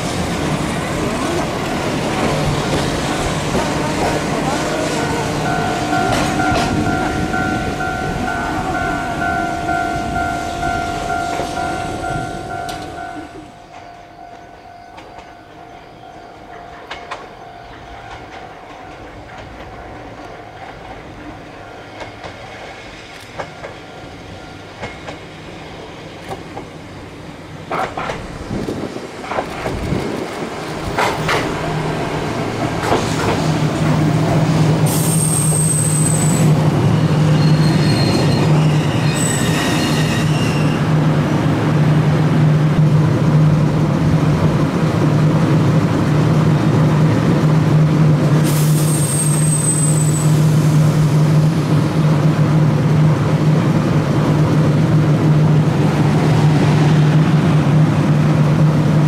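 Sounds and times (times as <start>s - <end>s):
train passing: 0.0s - 59.0s
wheels squealing on rails: 1.0s - 18.6s, 32.8s - 41.1s, 48.3s - 51.6s.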